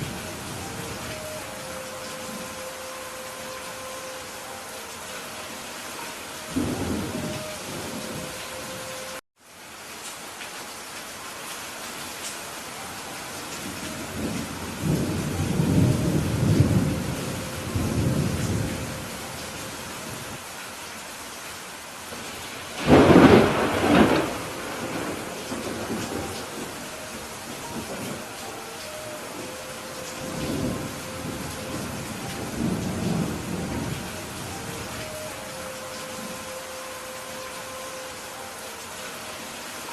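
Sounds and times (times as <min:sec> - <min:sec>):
steady rain: 0:00.0 - 0:39.9
low rolls of thunder: 0:13.7 - 0:19.2, 0:22.3 - 0:28.3, 0:30.2 - 0:35.0
rolling thunder: 0:22.8 - 0:26.9.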